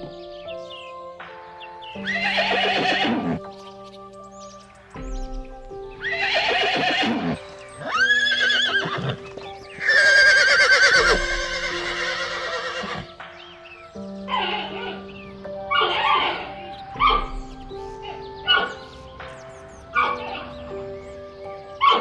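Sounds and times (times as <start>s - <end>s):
soft background music: 0.0s - 22.0s
horse whinnying: 2.1s - 3.4s, 6.0s - 9.2s, 9.8s - 13.1s, 15.8s - 16.5s.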